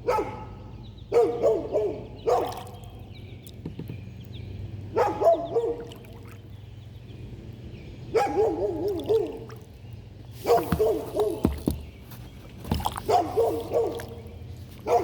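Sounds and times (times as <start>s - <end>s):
dog barking: 0.0s - 2.7s, 4.9s - 5.9s, 8.1s - 9.5s, 10.4s - 11.5s, 13.1s - 14.2s.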